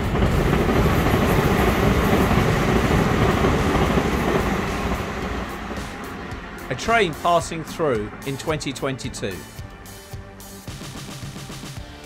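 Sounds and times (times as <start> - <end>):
train wheels rattling on rails: 0.0 - 9.6.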